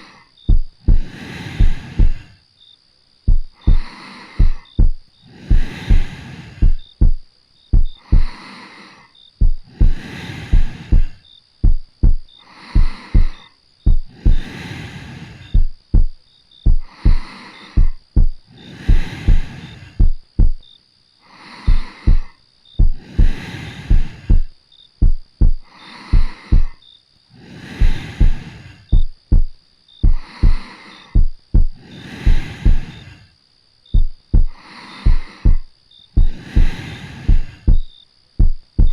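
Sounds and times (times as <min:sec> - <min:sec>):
soft breathing: 0:00.0 - 0:02.5, 0:03.3 - 0:38.9
heartbeat double thump: 0:00.5 - 0:02.3, 0:03.3 - 0:08.3, 0:09.4 - 0:14.5, 0:15.5 - 0:17.2, 0:17.8 - 0:20.6, 0:21.7 - 0:26.8, 0:27.8 - 0:30.6, 0:31.2 - 0:32.9, 0:33.9 - 0:38.9.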